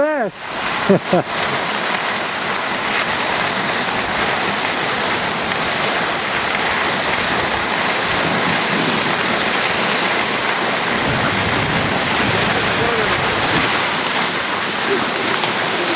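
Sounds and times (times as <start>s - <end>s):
skis sliding over snow: 0.5s - 15.9s
wind rushing over microphone: 3.2s - 14.8s.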